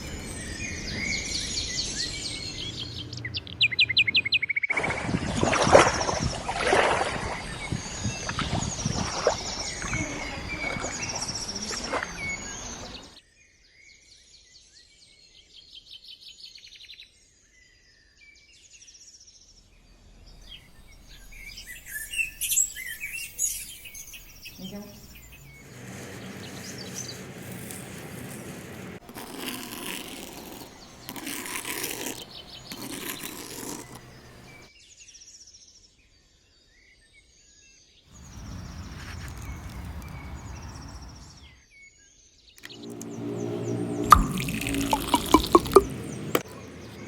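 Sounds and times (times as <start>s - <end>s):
birds singing and chirping: 0.0s - 5.4s, 6.1s - 13.2s, 21.4s - 28.3s.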